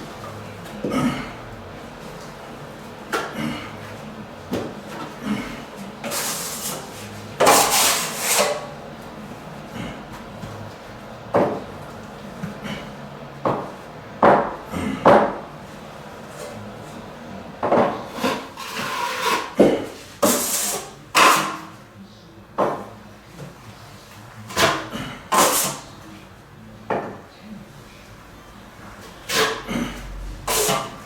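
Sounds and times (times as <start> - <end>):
drywall knife scraping: 6.0 - 8.7, 18.0 - 21.7, 24.5 - 25.8, 29.2 - 31.0.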